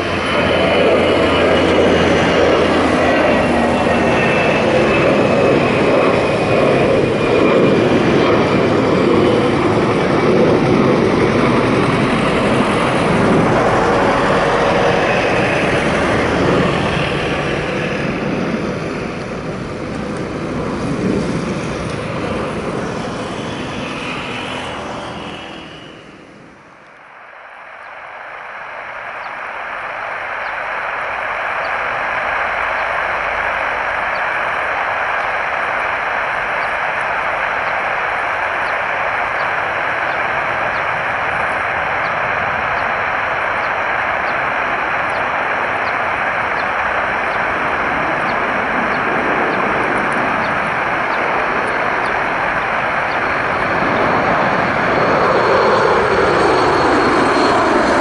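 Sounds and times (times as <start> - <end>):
jet engines roaring with whine: 0.0 - 58.0.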